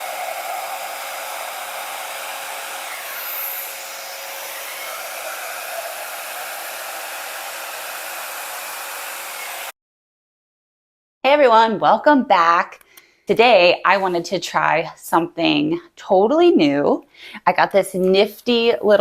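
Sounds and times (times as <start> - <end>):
hair dryer blowing: 0.0 - 9.8.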